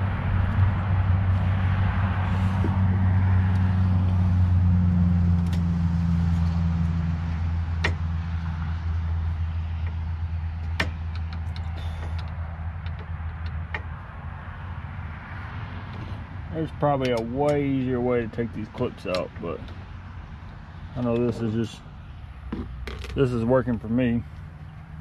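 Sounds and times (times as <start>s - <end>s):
low steady drone: 0.0s - 12.3s.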